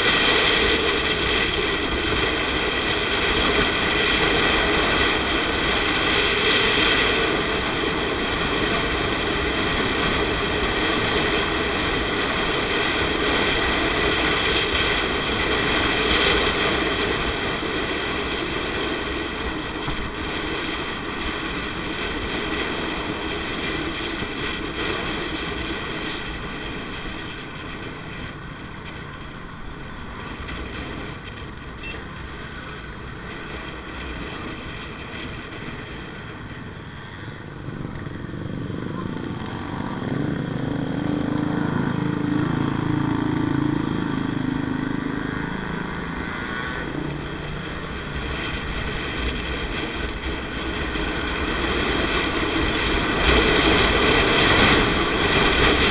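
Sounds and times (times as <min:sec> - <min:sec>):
motorcycle engine running: 0:00.0 - 0:55.9
road and wind noise: 0:00.0 - 0:55.9.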